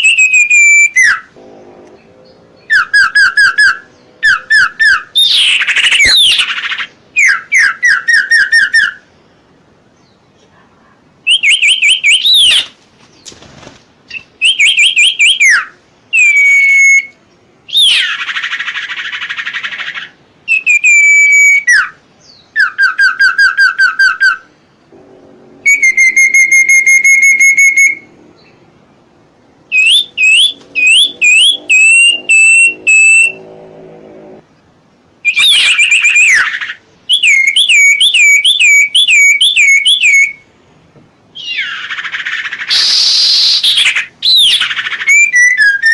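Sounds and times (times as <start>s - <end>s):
songbird whistling phrases: 0.0s - 1.3s, 2.2s - 9.1s, 11.2s - 12.7s, 14.1s - 24.5s, 25.6s - 28.6s, 29.7s - 33.4s, 35.2s - 40.5s, 41.4s - 45.9s
harsh rasping bird call: 0.0s - 9.1s, 17.7s - 28.6s, 29.7s - 34.4s, 41.4s - 45.9s.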